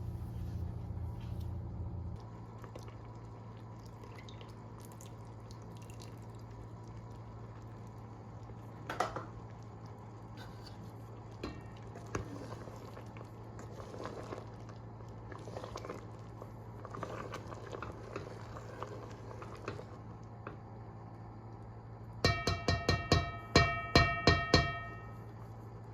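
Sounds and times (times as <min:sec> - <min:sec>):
low steady hum: 0:00.0 - 0:25.9
wet squishes of handling food: 0:02.2 - 0:18.0.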